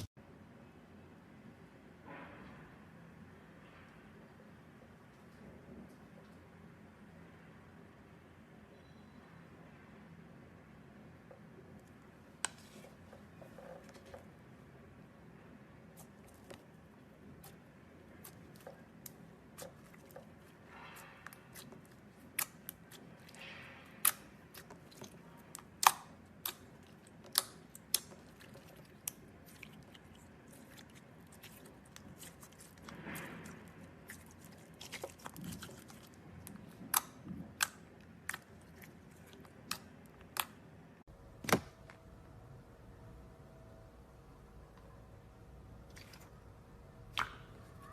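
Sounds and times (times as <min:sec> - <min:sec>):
slime squishing: 0:15.8 - 0:41.7.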